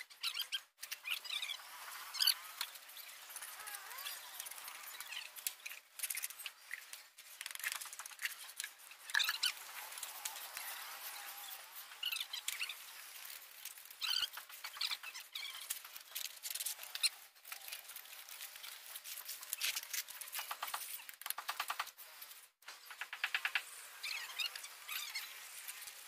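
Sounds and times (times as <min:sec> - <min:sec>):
small birds chirping: 0:00.0 - 0:07.2, 0:07.9 - 0:18.8, 0:22.8 - 0:26.0
bird rattling trill: 0:07.6 - 0:17.2.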